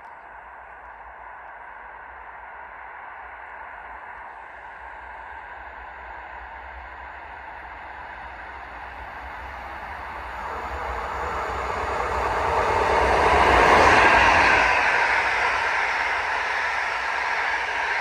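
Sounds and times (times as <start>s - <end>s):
train rushing rumble: 8.4s - 18.0s.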